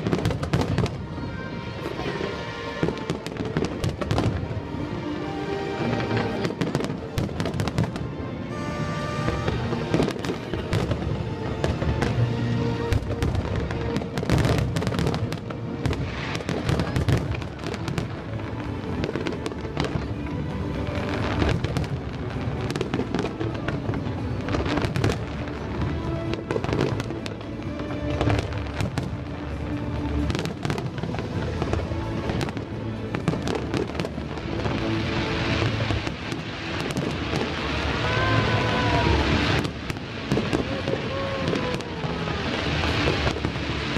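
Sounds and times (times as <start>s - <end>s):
fireworks bangs: 0.0s - 43.9s
music playing: 0.0s - 43.9s.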